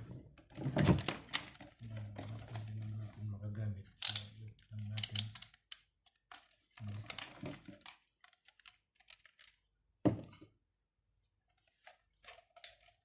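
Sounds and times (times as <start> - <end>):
objects clicking and rustling: 4.0 - 9.7.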